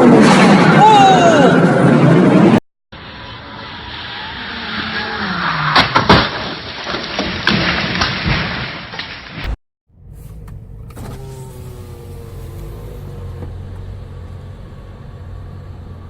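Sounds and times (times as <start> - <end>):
car engine and road noise: 1.8 - 6.9, 9.4 - 16.0.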